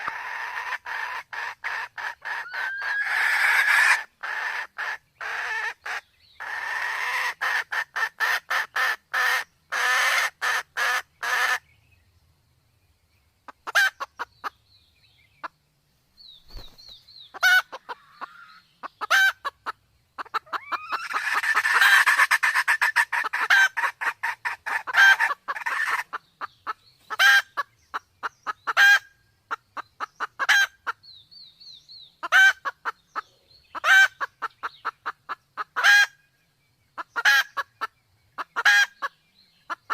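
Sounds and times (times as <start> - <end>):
junglefowl clucking: 0.0 - 11.6, 13.5 - 14.6, 17.3 - 31.0, 32.2 - 36.2, 37.0 - 39.9.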